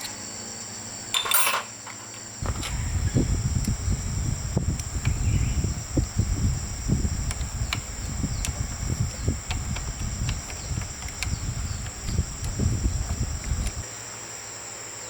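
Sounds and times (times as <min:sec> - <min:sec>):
high-pitched insect drone: 0:01.9 - 0:15.0
low rumbling: 0:02.4 - 0:13.8.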